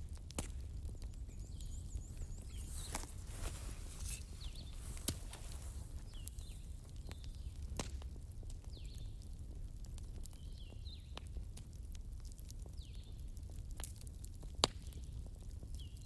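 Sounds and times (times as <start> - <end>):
wood fire crackling: 0.0 - 8.7.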